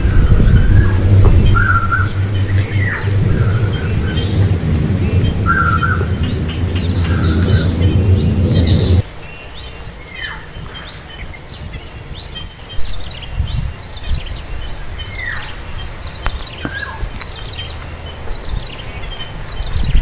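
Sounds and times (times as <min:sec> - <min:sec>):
birds chirping: 0:00.0 - 0:09.0
pulsing insect trill: 0:00.0 - 0:09.0.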